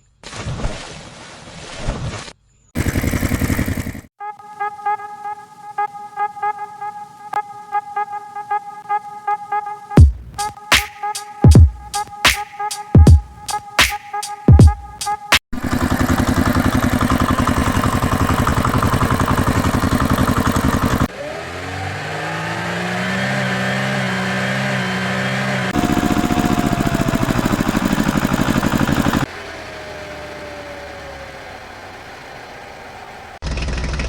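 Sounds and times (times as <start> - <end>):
engine revving up: 2.8 - 4.1, 15.6 - 34.0
fast-chugging engine: 2.8 - 4.1, 15.6 - 34.0
quiet engine with falling tone: 15.6 - 34.0.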